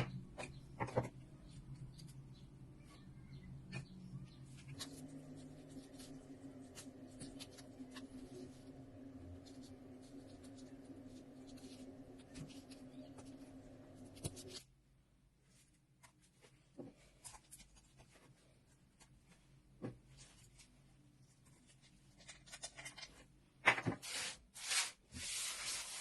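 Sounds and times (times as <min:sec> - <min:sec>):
steady low hum: 0:00.0 - 0:15.3.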